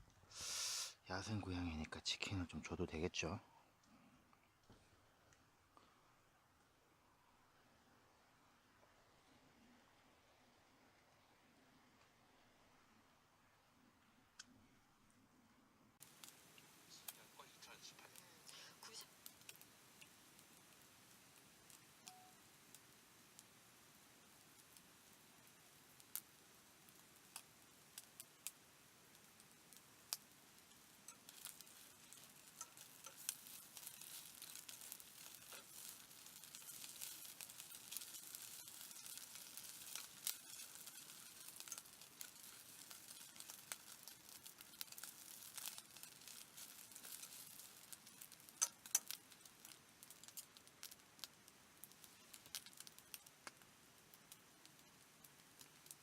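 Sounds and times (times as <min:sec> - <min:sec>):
light hiss: 0:00.0 - 0:56.0
soft crinkling: 0:16.0 - 0:56.0
small clicks: 0:29.7 - 0:56.0.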